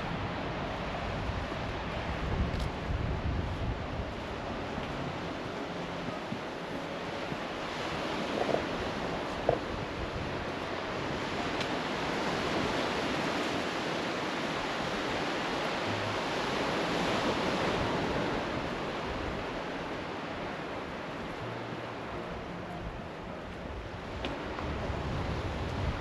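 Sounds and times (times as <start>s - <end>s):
sea surf washing onto beach: 0.0s - 26.0s.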